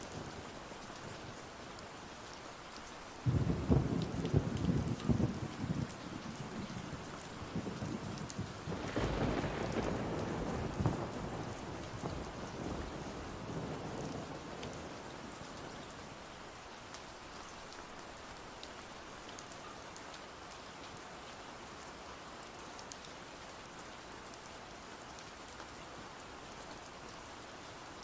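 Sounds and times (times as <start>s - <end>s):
rain pattering: 0.0s - 28.0s
thunder rumble: 3.3s - 15.1s.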